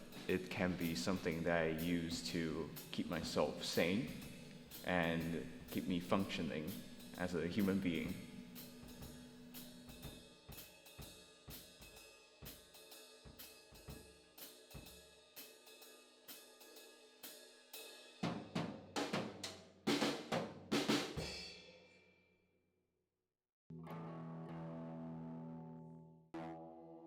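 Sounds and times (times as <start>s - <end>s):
drum kit beat: 0.0s - 16.8s, 17.8s - 21.5s.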